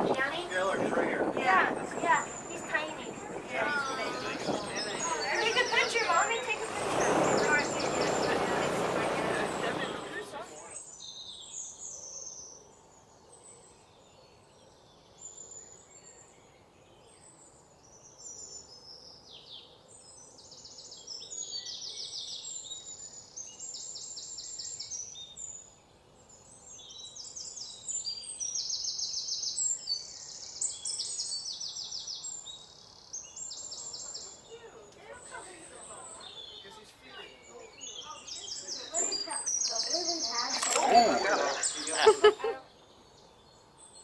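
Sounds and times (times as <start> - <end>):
birds chirping and singing: 0.0 - 12.5, 26.4 - 44.0.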